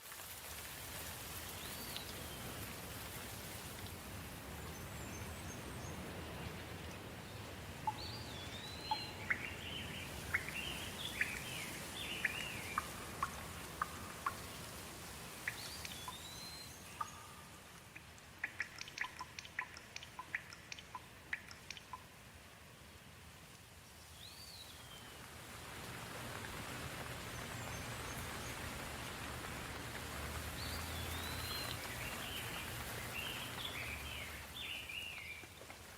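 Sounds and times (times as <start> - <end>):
soft rain falling: 0.0 - 35.9
short sharp dripping ticks: 7.8 - 22.2.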